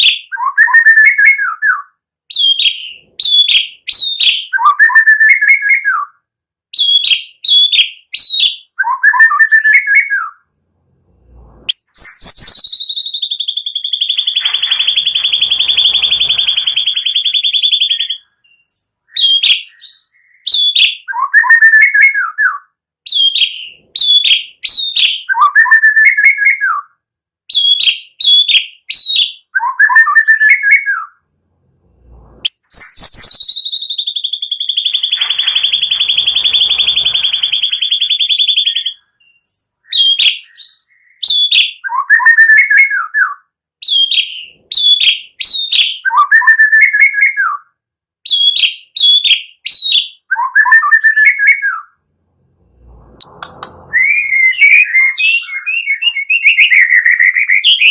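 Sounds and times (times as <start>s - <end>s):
recorded songbird calls: 0.0s - 57.9s
rapid high bird trill: 11.2s - 20.4s, 31.9s - 39.1s.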